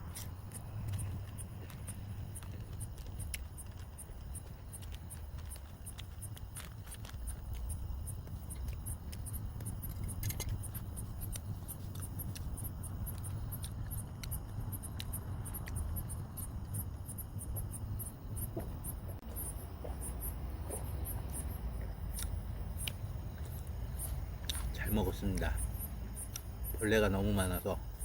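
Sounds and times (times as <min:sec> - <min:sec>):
insects chirping: 0:00.0 - 0:28.0
low steady rumble: 0:00.0 - 0:28.0
sharp clicks: 0:00.1 - 0:18.6.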